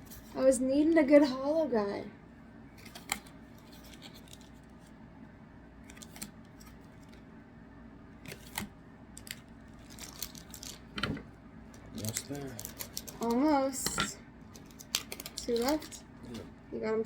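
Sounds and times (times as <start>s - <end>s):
trading cards and foil packs handled: 2.7s - 5.0s, 5.8s - 7.3s, 8.2s - 16.6s.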